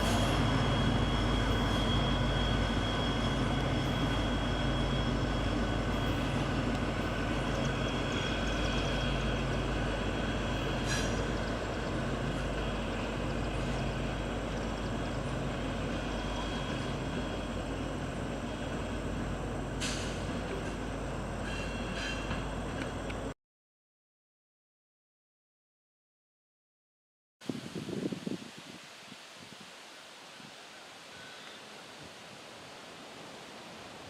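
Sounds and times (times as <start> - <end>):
train rumbling on rails: 0.0 - 23.4
faint thin squeal: 10.6 - 11.3, 21.4 - 22.5, 31.1 - 31.7.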